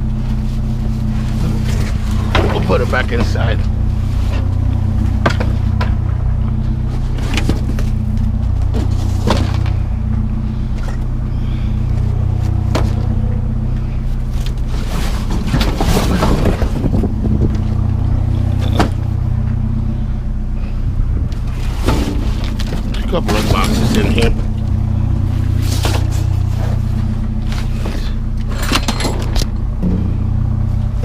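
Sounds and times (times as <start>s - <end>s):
vehicle engine idling: 0.0s - 31.0s
scrap items knocking and clattering: 14.7s - 17.0s.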